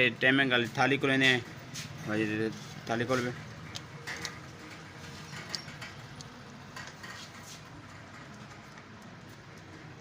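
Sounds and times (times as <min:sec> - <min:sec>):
hand tools clicking on metal: 0:03.7 - 0:09.7.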